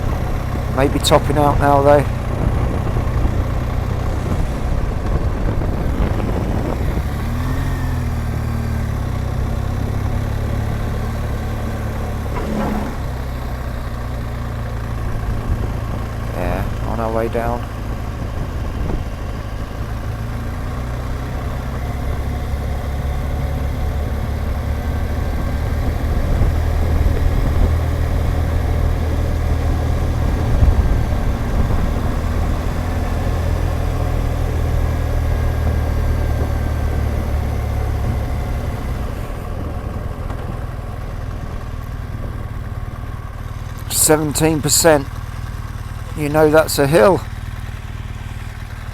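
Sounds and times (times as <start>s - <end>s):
motorcycle engine at low revs: 0.0s - 48.9s
wind rushing: 12.2s - 13.3s.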